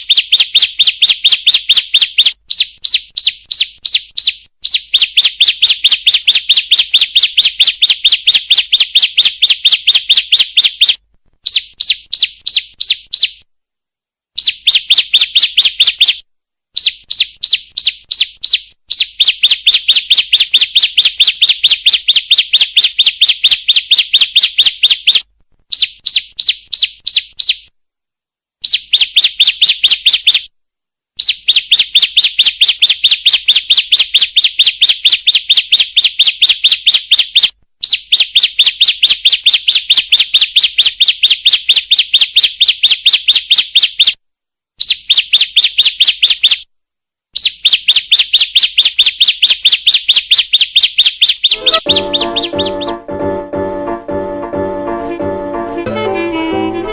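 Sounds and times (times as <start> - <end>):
bird giving sharp high chirps: 48.6 - 53.5.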